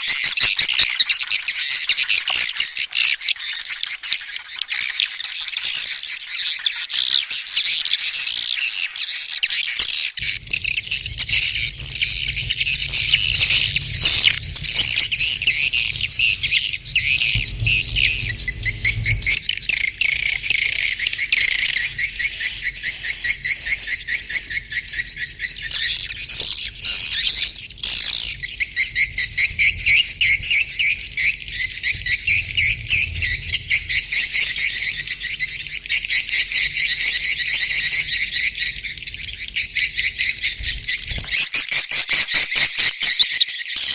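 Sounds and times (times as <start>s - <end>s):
swiftlets chittering: 10.2s - 41.1s.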